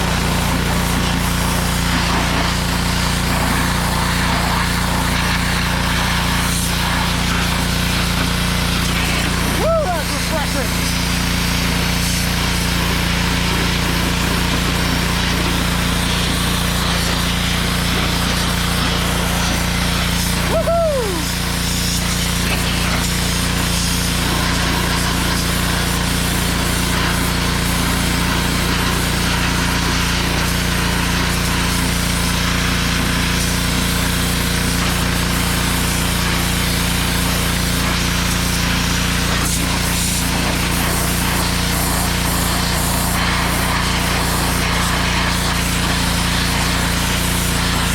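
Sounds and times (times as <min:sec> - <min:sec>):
pressure washer spraying: 0:00.0 - 0:47.9.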